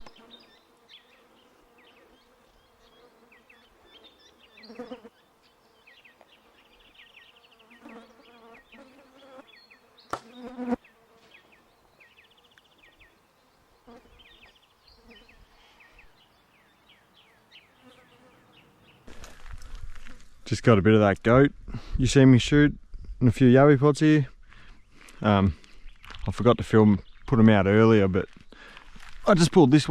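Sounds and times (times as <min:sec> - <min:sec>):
flying insects buzzing: 0:00.0 - 0:20.4.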